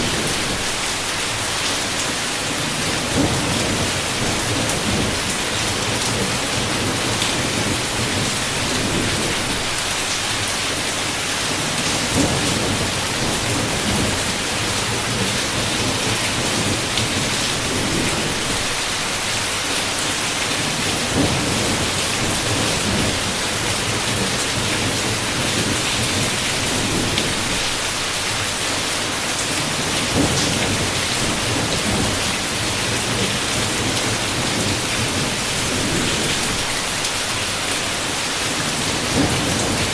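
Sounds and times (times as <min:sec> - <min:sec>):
heavy rain on a window: 0:00.0 - 0:39.9
low rolling thunder: 0:02.5 - 0:09.8, 0:11.9 - 0:18.8, 0:20.6 - 0:27.7, 0:29.7 - 0:36.8, 0:38.8 - 0:39.9.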